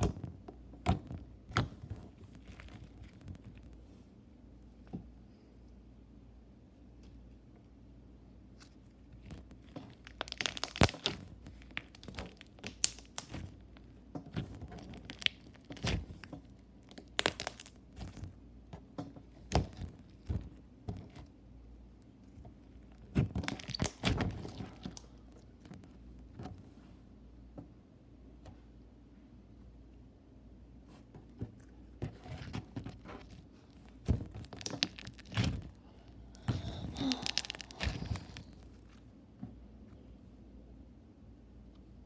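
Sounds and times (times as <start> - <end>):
slime sticky clicks and pops: 10.1 - 13.6, 23.4 - 24.3.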